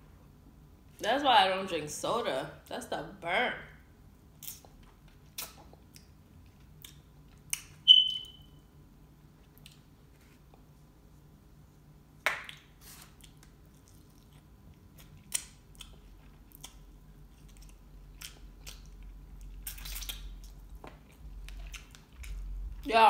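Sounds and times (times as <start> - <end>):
chewing fries: 4.4 - 7.8, 9.4 - 10.8, 12.4 - 22.9.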